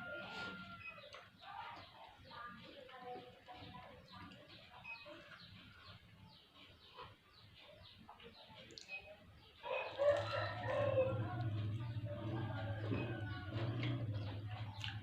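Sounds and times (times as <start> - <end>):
small birds chirping: 0.0 - 15.0
rooster crowing: 9.6 - 14.1.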